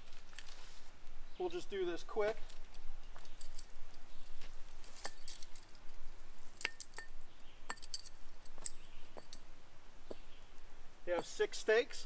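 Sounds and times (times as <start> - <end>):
metal tent stakes clinking: 4.9 - 5.8, 6.6 - 9.5.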